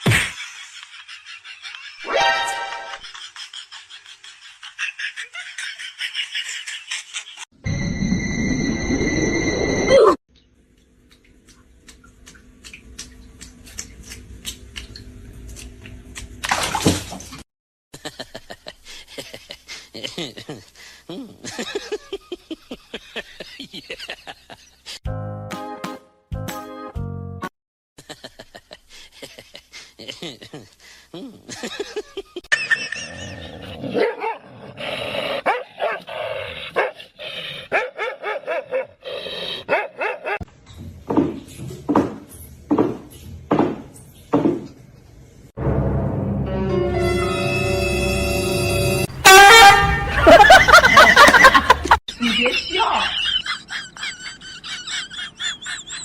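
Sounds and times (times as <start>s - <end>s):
water sloshing: 11.0s - 17.4s
water splashing: 11.0s - 17.4s
dog barking and yipping: 33.9s - 34.4s, 35.4s - 36.1s, 37.7s - 39.0s, 39.7s - 40.5s.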